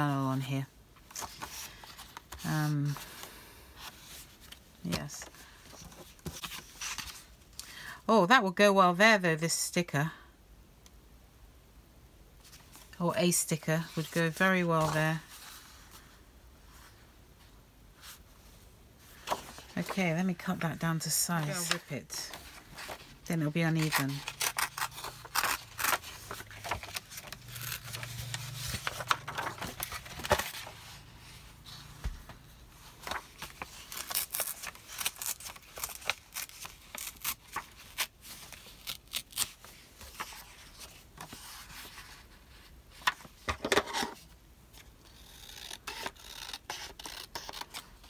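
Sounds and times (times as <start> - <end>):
paper rustling: 1.0 - 7.3, 19.0 - 44.9
paper tearing: 23.7 - 30.7, 33.0 - 40.4, 45.0 - 48.0.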